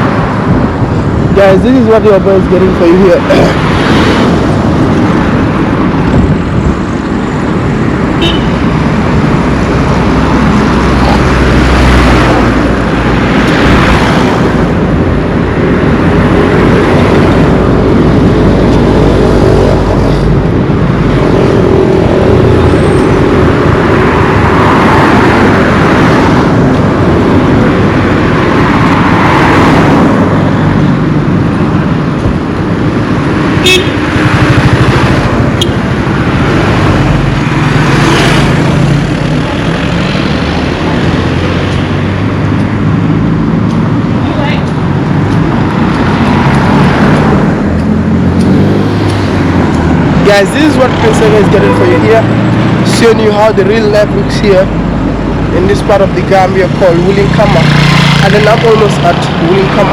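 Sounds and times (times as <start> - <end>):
road traffic rumble: 0.0 - 59.9
vehicle horn tooting: 8.2 - 8.6, 33.6 - 34.0.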